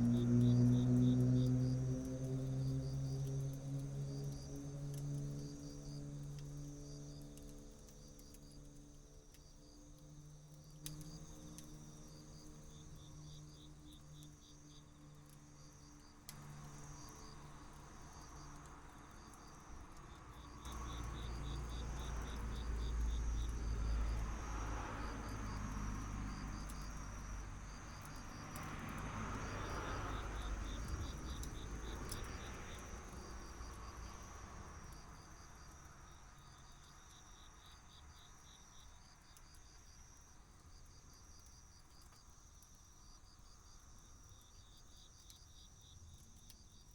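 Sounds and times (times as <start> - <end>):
insects chirping: 10.6 - 46.9.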